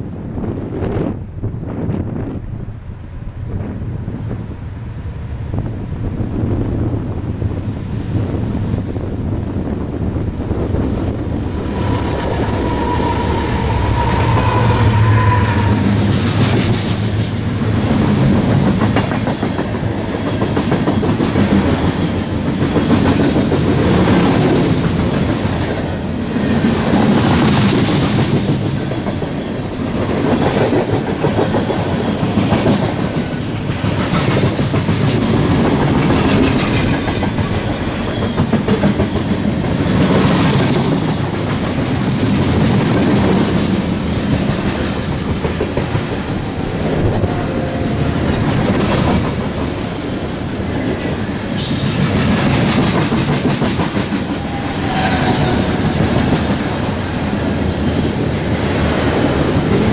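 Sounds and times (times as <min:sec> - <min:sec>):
high whine: 0:09.7 - 0:17.8
train wheels clacking over rail joints: 0:11.6 - 0:47.0, 0:50.6 - 0:59.9.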